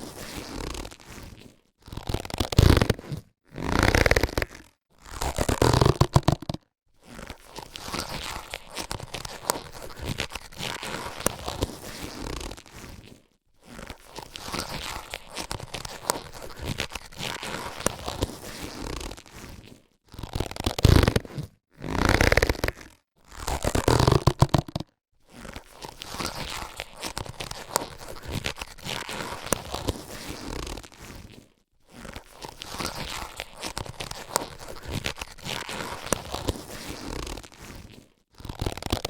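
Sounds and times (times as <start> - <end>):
latex gloves rustling: 5.4 - 21.5, 23.8 - 39.0.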